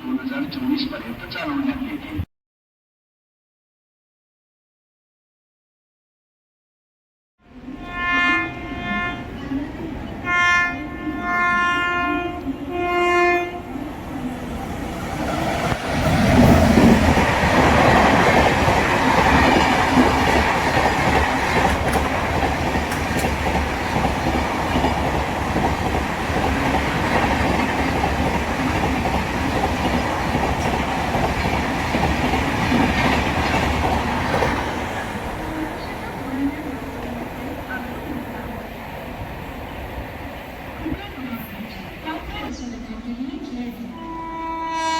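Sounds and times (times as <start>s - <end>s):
locomotive horn blast: 7.5s - 9.4s, 10.2s - 13.8s, 43.9s - 44.9s
train wheels rumbling on rail: 11.2s - 42.5s.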